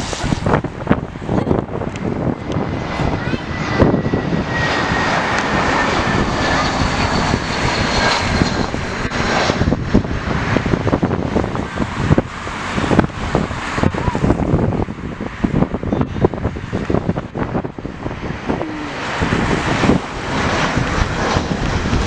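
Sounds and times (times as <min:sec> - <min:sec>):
airliner engines passing: 0:00.0 - 0:22.0
wind buffeting microphone: 0:00.0 - 0:22.0.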